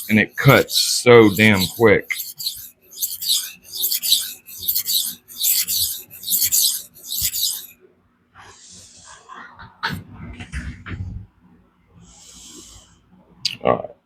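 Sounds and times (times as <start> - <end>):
knife blade stroked on sharpening stone: 0.0 - 7.7.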